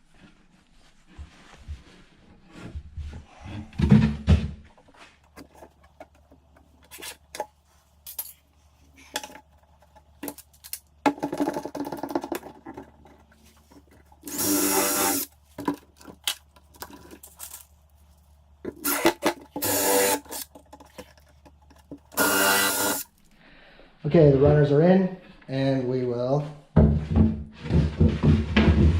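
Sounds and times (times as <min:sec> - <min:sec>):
power tool burst: 0:14.3 - 0:15.3, 0:18.8 - 0:20.4, 0:22.2 - 0:23.1
wood knocks clicks and scrapes: 0:20.4 - 0:22.2.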